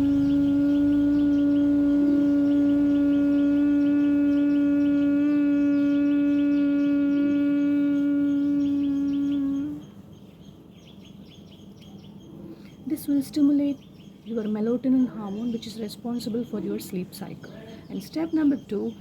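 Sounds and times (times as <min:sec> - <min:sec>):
person humming steadily: 0:00.0 - 0:10.0
birds chirping faintly: 0:00.0 - 0:19.0.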